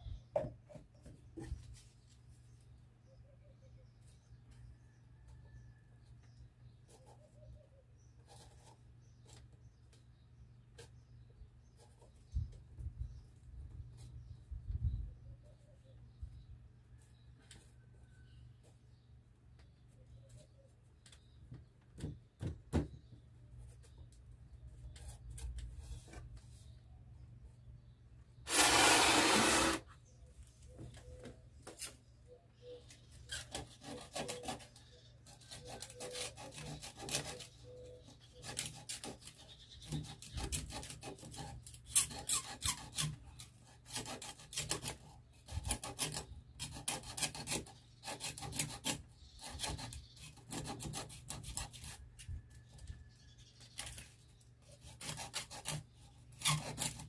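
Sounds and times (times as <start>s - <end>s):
sandpaper scraping: 28.5s - 30.0s.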